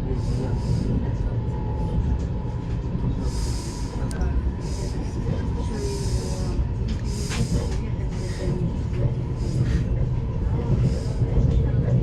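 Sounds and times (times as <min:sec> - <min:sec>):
electric train running rumble: 0:00.0 - 0:12.0
rail hiss: 0:03.2 - 0:08.6.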